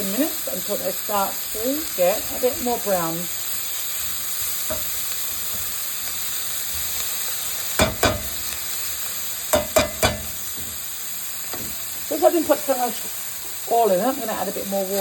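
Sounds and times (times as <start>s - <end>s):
onions sizzling in oil: 0.0s - 15.0s
utensil knocking on pan: 4.7s - 5.0s, 7.8s - 8.4s, 9.5s - 10.8s.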